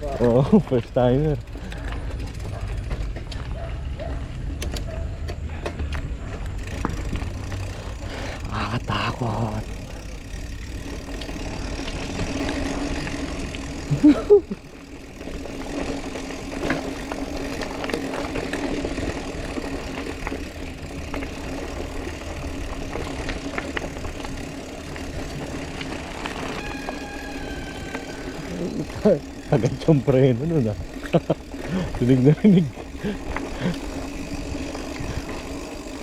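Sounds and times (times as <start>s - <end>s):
small rattles and clicks: 0.0s - 3.7s, 4.5s - 36.0s
bicycle rumble on dirt trail: 0.0s - 36.0s
bicycle brake squealing: 24.6s - 30.8s.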